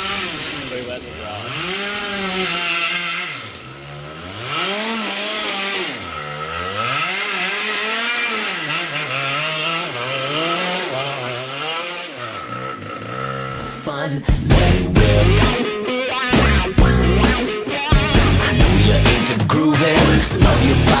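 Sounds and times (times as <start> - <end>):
kart engine revving: 0.0 - 21.0.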